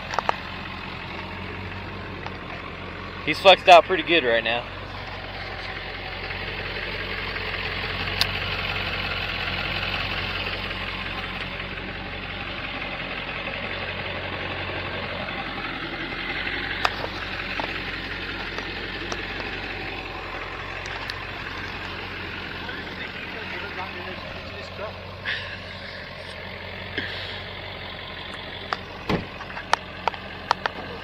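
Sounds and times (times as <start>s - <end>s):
sharp clicks from truck: 0.0s - 1.4s, 8.1s - 9.0s, 16.4s - 22.1s, 28.2s - 31.0s
truck engine running at low revs: 0.0s - 31.0s.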